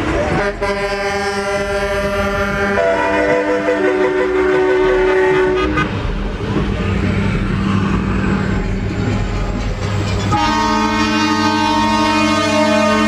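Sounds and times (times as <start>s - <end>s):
truck air horn chord: 10.4s - 13.0s.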